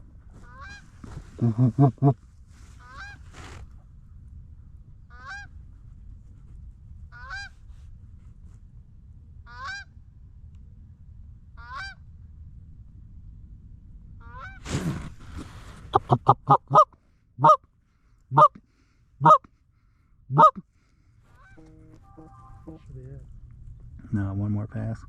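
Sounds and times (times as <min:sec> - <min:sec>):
geese honking: 0:15.9 - 0:17.6, 0:18.3 - 0:18.6, 0:20.3 - 0:20.6, 0:21.3 - 0:22.9.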